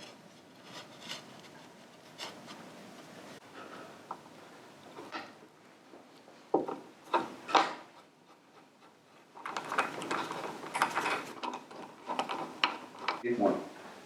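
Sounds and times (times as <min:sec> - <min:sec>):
hard objects clattering: 0:09.4 - 0:13.3.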